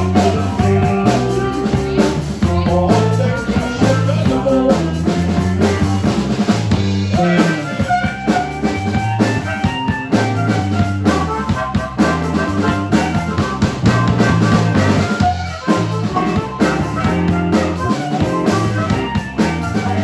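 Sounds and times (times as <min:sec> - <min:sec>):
drum kit with rimshots: 0:00.0 - 0:20.0
guitar: 0:00.0 - 0:20.0
live rock band playing: 0:00.0 - 0:20.0.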